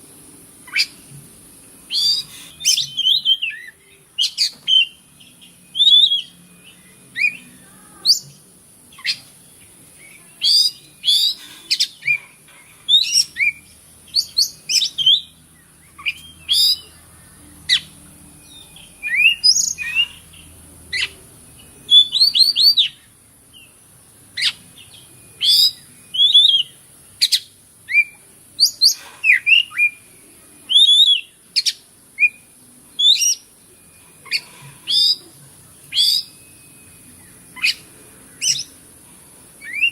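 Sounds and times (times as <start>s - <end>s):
bird singing whistles and chirps: 1.9s - 12.2s, 12.8s - 23.8s, 24.4s - 38.8s, 39.6s - 39.9s.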